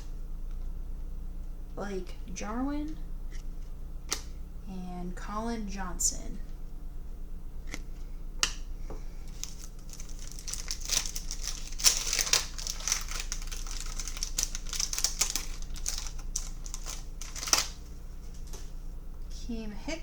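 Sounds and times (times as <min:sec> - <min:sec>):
foil wrapper crinkling: 0:09.2 - 0:18.7.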